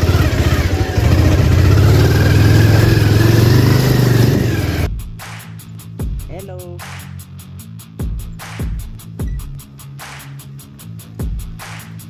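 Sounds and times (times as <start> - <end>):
motorcycle engine running: 0.0 - 4.9.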